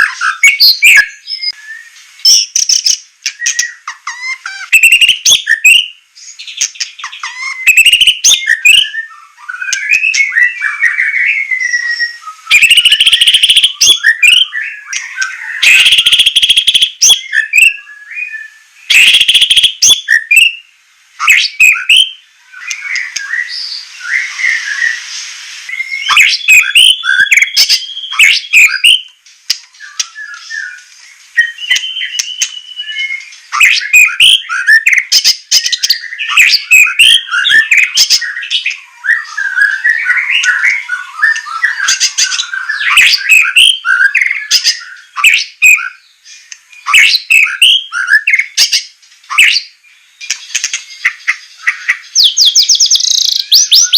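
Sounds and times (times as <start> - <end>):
bird singing whistled phrases: 0.0 - 25.1, 25.7 - 53.9
bird rasping calls: 2.5 - 5.9, 6.6 - 10.8, 11.8 - 17.8, 18.9 - 20.5, 21.2 - 25.0, 26.0 - 29.0, 31.4 - 38.6, 39.2 - 46.0.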